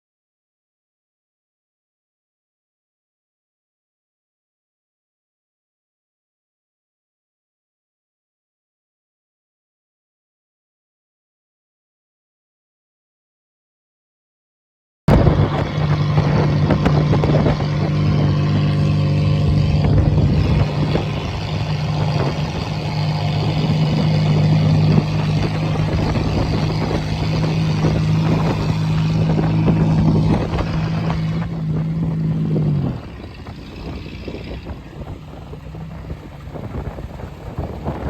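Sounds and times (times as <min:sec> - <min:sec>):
car engine running hard: 0:15.1 - 0:38.0
road noise: 0:15.1 - 0:38.0
wind noise: 0:15.1 - 0:38.0.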